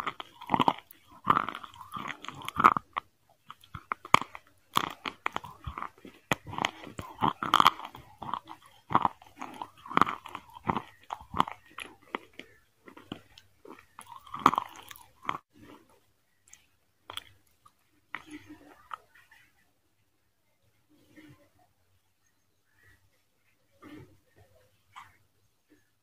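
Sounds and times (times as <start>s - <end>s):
person chewing with smacks: 0.0s - 19.6s.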